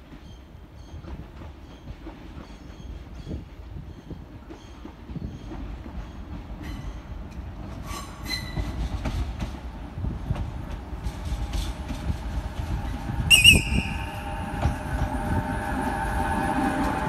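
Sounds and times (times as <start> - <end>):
loud high train squeal: 0.0 - 9.4, 12.8 - 17.0
steady train whine: 0.0 - 17.0
train wheels rumbling on rails: 0.0 - 17.0.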